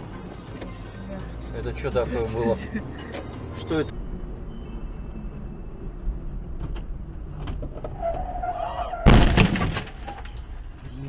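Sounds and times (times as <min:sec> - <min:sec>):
car road rumble: 0:00.0 - 0:11.0
high squeal: 0:03.9 - 0:06.3, 0:07.8 - 0:09.2
loud impact: 0:09.1 - 0:10.1.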